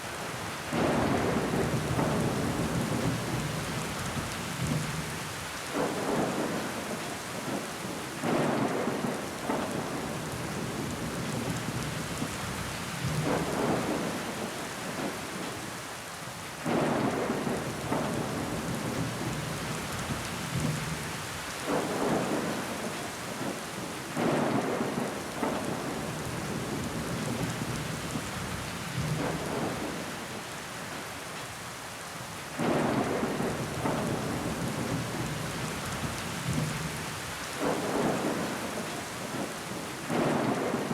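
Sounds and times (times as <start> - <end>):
rain rushes: 0.0 - 40.9
steady rain falling: 0.0 - 40.9.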